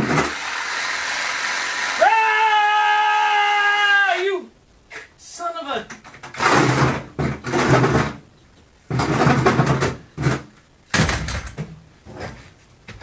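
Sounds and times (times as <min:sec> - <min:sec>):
power saw cutting sheet metal: 0:00.0 - 0:02.0.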